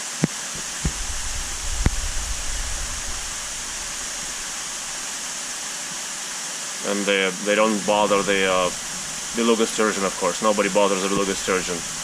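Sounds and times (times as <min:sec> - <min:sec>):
low rumble: 0:00.6 - 0:05.6, 0:07.8 - 0:12.0.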